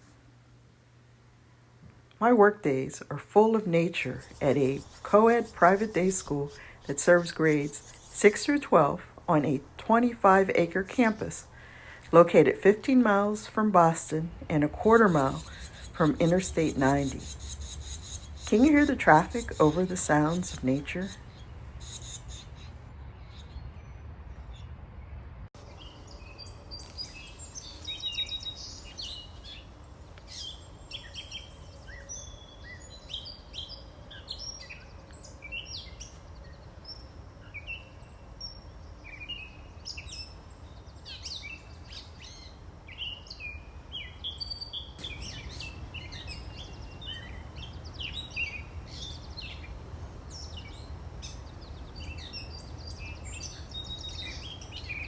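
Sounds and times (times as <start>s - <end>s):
songbirds chirping and singing: 3.3s - 24.7s, 25.6s - 55.0s
highway traffic rumble: 3.4s - 30.8s, 45.0s - 55.0s.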